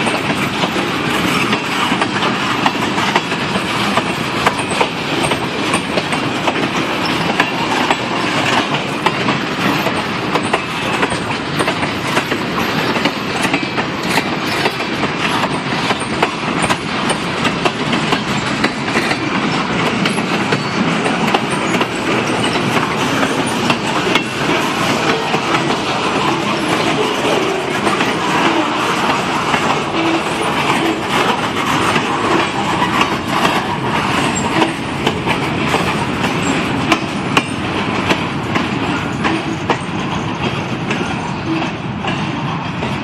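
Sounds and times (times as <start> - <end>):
clickety-clack of rail joints: 0.0 - 43.0
train wheels rumbling: 0.0 - 43.0.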